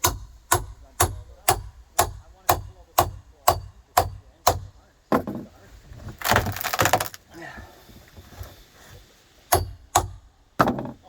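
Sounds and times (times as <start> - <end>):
wood crackling and splintering: 6.0 - 7.4.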